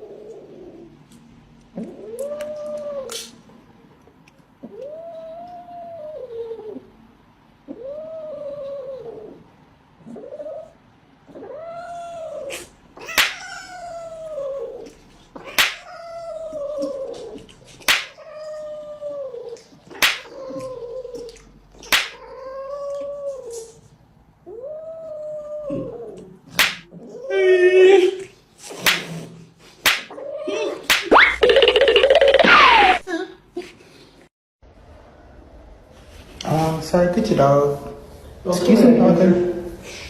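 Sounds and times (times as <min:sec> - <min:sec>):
sharp click or smack: 0:13.2 - 0:13.4, 0:15.6 - 0:15.8, 0:17.9 - 0:18.2, 0:20.0 - 0:20.3, 0:21.9 - 0:22.2, 0:26.6 - 0:26.8, 0:28.8 - 0:29.1, 0:29.9 - 0:30.1, 0:30.9 - 0:31.1.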